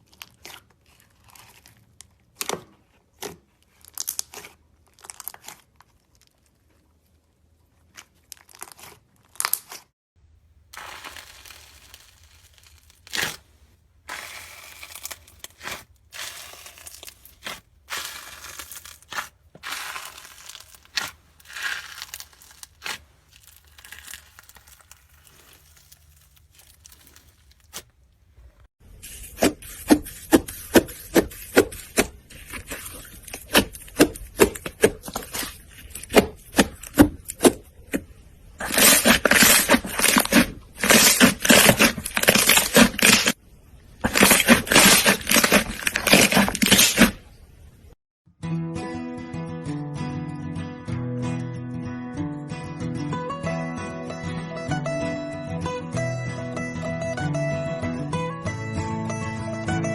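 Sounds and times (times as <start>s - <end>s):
slime crackling and scraping: 0.0s - 2.4s, 3.1s - 6.7s, 7.7s - 9.9s, 10.7s - 43.4s, 44.0s - 47.4s.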